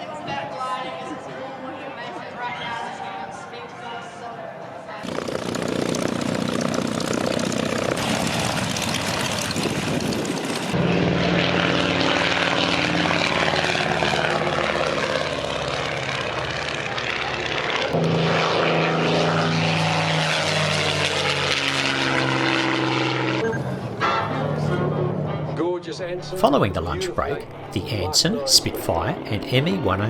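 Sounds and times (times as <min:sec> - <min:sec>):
propeller aircraft engine running: 0:05.0 - 0:30.0.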